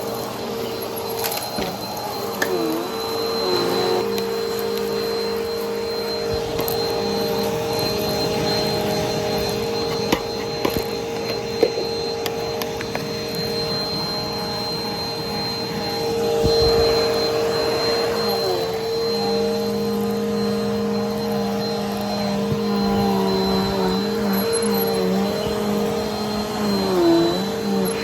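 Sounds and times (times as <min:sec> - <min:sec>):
vacuum cleaner running: 0:00.0 - 0:28.0.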